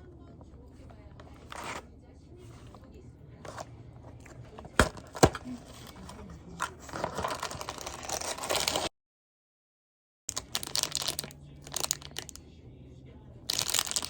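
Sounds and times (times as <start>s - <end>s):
plastic packaging crinkling and tearing: 6.7s - 8.9s, 10.3s - 12.4s, 13.5s - 14.0s
plastic packaging clicks: 10.3s - 12.4s, 13.5s - 14.0s.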